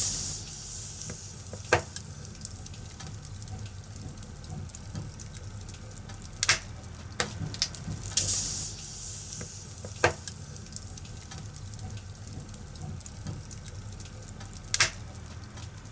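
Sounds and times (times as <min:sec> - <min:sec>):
fire hissing: 0:00.0 - 0:03.5, 0:07.2 - 0:12.8
low steady rumble: 0:00.0 - 0:15.9
wood fire crackling: 0:00.0 - 0:15.9.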